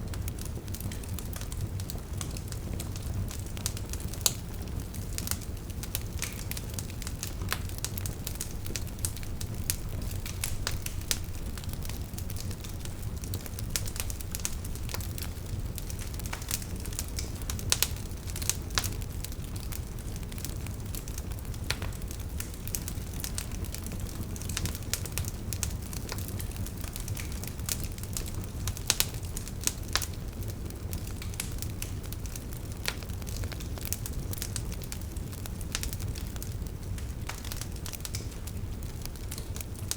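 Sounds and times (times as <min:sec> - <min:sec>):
burning logs crackling: 0:00.0 - 0:39.9.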